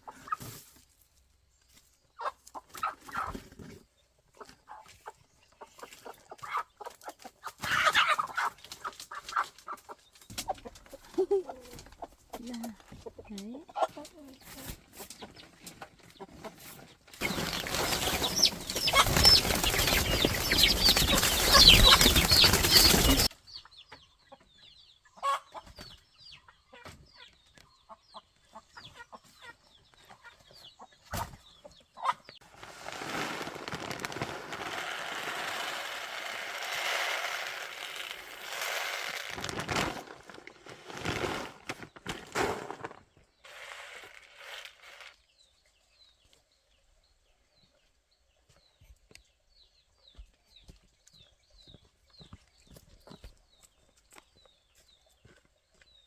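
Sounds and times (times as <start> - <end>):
chickens clucking and squawking: 0.0 - 0.8, 2.1 - 32.4
wings flapping: 17.2 - 23.3, 32.6 - 42.5.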